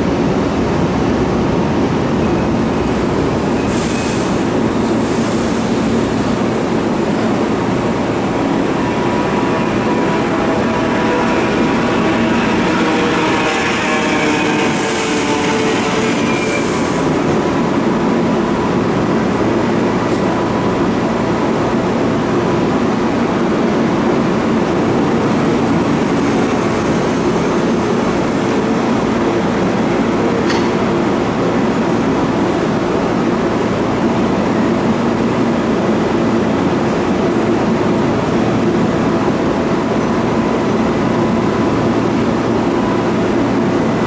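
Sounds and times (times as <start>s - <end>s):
train wheels rumbling on rail: 0.0s - 44.0s
train motor whine: 5.8s - 21.8s.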